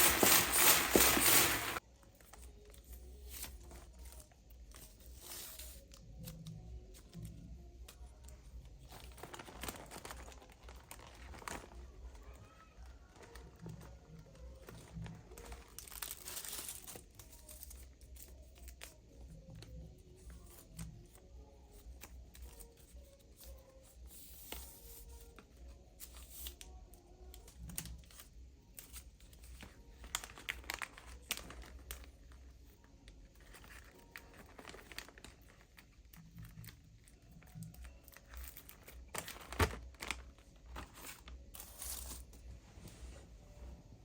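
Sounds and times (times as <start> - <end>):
crinkly material tearing and crumpling: 0.0 - 42.5.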